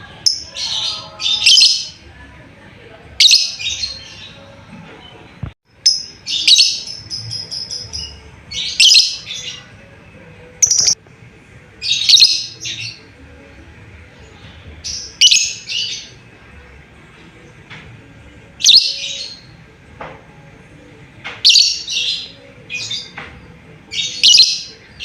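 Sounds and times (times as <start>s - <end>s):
lovebird shrill chirping: 8.7s - 9.2s, 10.6s - 11.0s.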